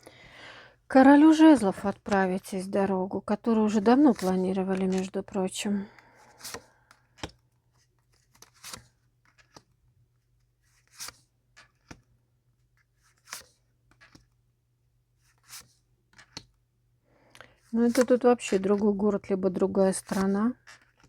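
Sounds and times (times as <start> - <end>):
cards rustling and tapping on table: 3.5 - 5.1, 6.3 - 9.8, 10.8 - 12.1, 12.8 - 14.4, 15.3 - 16.6, 17.9 - 18.8, 20.0 - 21.0.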